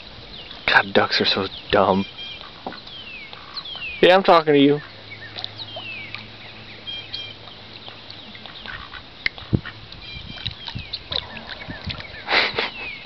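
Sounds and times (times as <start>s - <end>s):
ducks quacking softly: 4.7s - 9.9s.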